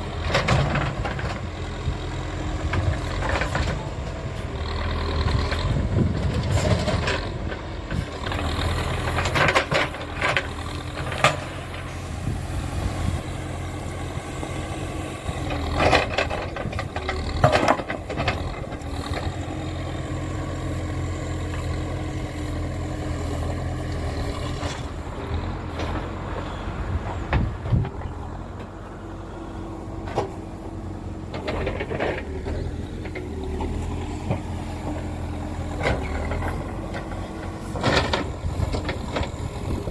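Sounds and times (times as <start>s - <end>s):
backhoe diesel engine running: 0.0s - 39.9s
metal clanks and knocks: 15.6s - 19.2s.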